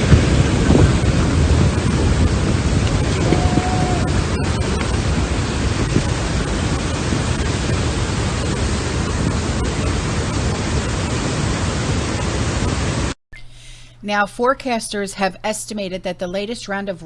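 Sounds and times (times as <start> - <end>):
heavy rain pouring: 0.0 - 13.1.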